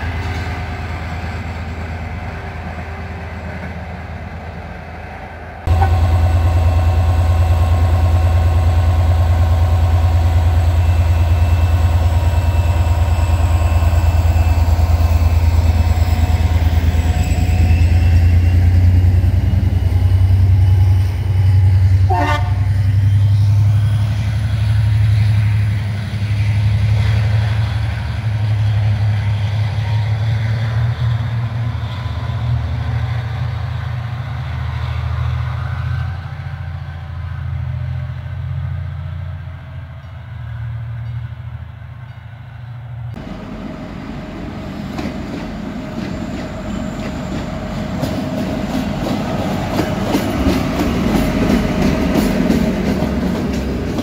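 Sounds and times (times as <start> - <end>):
train rumbling past: 0.0 - 54.0
train horn toot: 5.7 - 9.4, 22.0 - 22.9
high drifting whine: 5.7 - 26.7.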